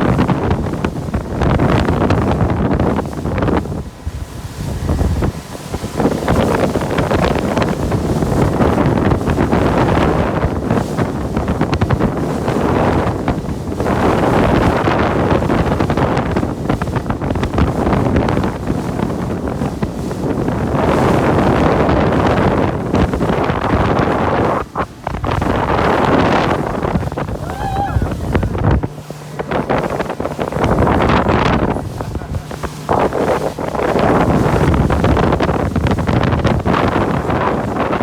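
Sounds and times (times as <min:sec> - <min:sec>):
water rushing around hull: 0:00.0 - 0:38.0
wind buffeting microphone: 0:00.0 - 0:38.0.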